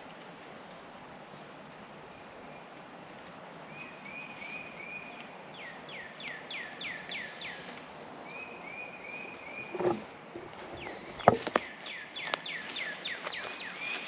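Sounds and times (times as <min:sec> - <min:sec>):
background hiss: 0:00.0 - 0:14.0
songbirds singing: 0:00.4 - 0:14.0
single knock: 0:11.2 - 0:11.6.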